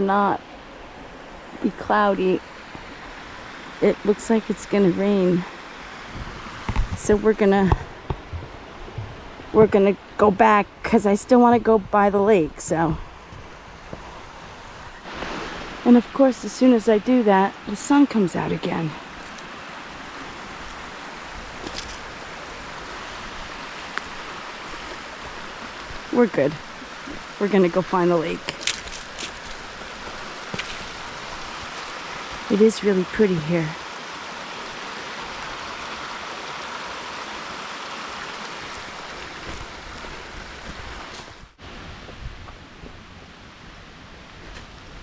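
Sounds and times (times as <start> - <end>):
stream water rushing: 0.0 - 45.0
wind rumble on microphone: 6.0 - 15.9, 38.8 - 45.0.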